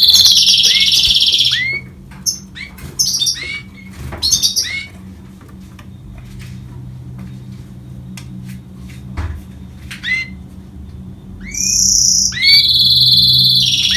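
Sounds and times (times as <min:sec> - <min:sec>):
bird call: 0:00.0 - 0:04.9, 0:11.4 - 0:13.9
high trilled birdsong: 0:00.0 - 0:05.1, 0:09.9 - 0:13.9.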